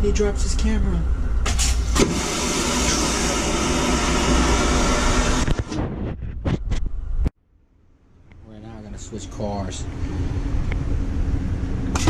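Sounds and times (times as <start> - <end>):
train rumbling and rushing: 9.3 - 12.0.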